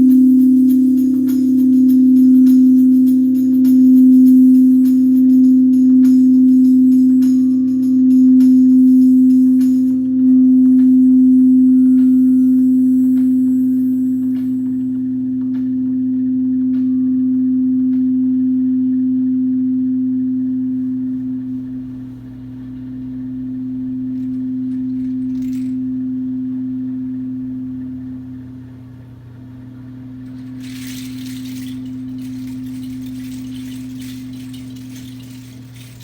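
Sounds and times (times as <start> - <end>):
singing bowl sustained tone: 0.0 - 21.4, 30.3 - 36.0
soft hissing shimmer: 24.0 - 25.9, 30.3 - 36.0.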